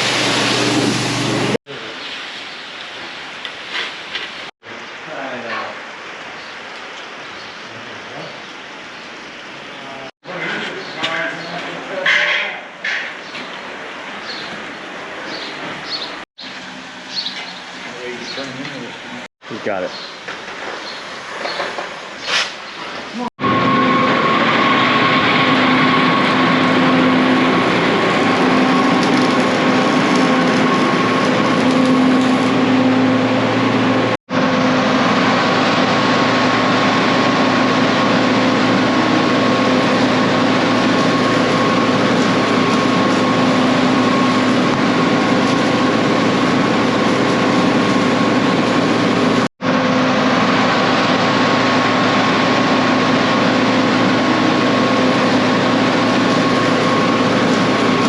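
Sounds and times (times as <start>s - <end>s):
farm machinery engine running: 0.0s - 1.6s, 23.4s - 58.0s.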